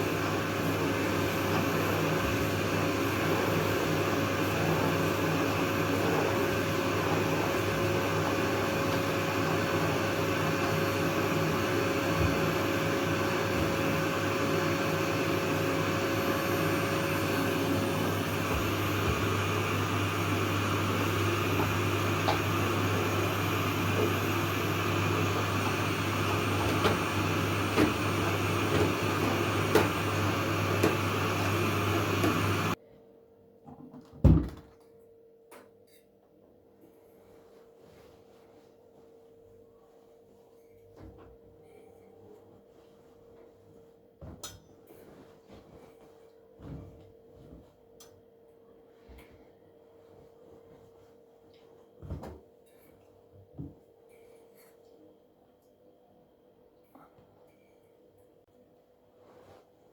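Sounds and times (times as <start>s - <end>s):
appliance motor hum: 0.0s - 32.8s.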